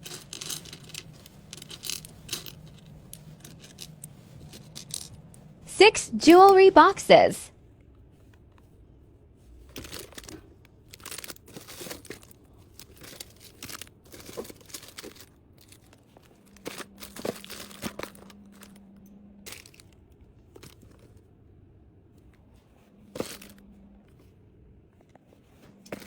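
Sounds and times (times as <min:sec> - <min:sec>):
plastic packaging crackling: 0:10.9 - 0:16.0.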